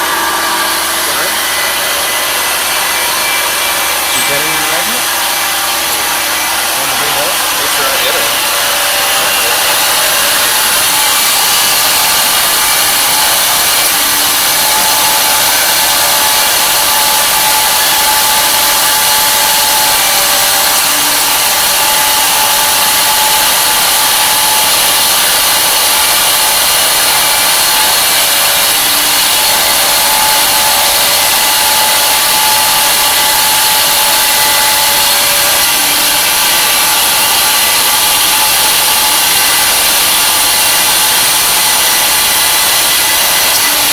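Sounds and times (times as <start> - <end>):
milling machine cutting metal: 0.0 - 43.9.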